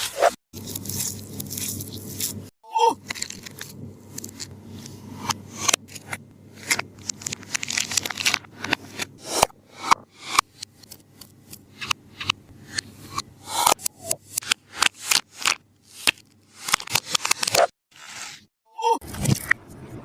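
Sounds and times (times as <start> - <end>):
tape skin crinkling: 0.6 - 4.5, 5.6 - 9.1, 14.0 - 17.7.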